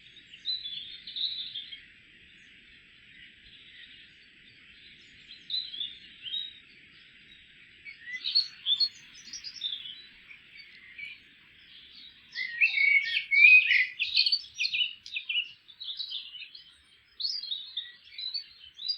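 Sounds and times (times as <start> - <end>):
small songbirds chirping: 0.0 - 18.9.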